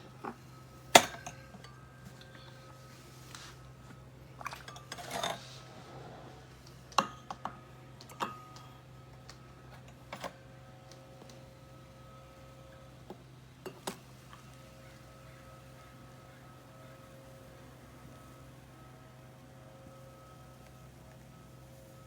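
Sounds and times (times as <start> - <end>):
low steady hum: 0.0 - 22.0
cups and utensils clinking: 0.1 - 3.6, 4.3 - 8.8, 13.6 - 14.5.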